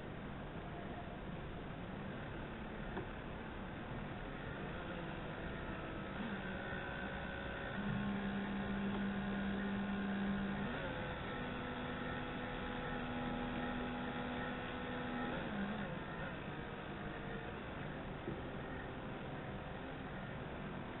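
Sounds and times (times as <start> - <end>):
electric motor whine: 2.1 - 21.0.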